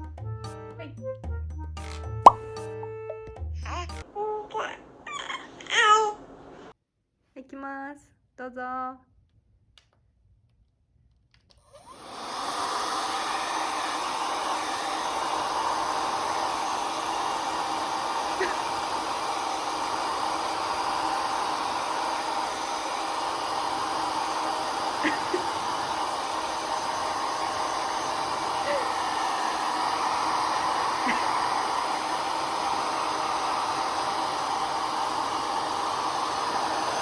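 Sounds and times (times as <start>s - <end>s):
hair dryer blowing air: 11.7s - 37.0s.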